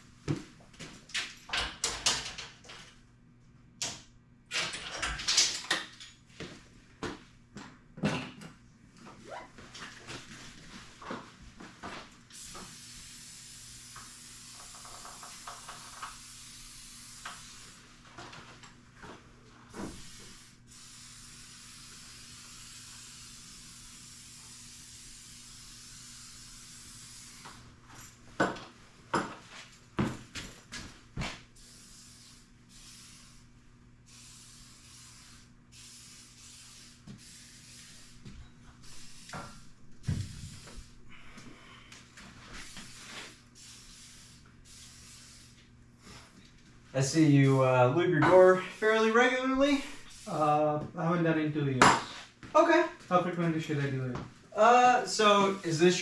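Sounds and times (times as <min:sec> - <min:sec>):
aerosol spray hissing: 0:12.3 - 0:17.8, 0:19.8 - 0:27.6, 0:31.6 - 0:33.4, 0:34.1 - 0:40.9, 0:42.6 - 0:45.6, 0:48.3 - 0:50.6, 0:55.1 - 0:56.0.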